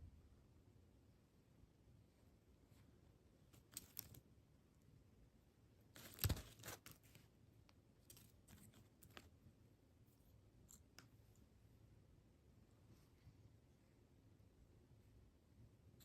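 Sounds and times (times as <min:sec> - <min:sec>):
faint crinkles and clicks: 0:03.5 - 0:04.3, 0:06.0 - 0:09.4
tearing crinkly rustle: 0:06.0 - 0:07.2.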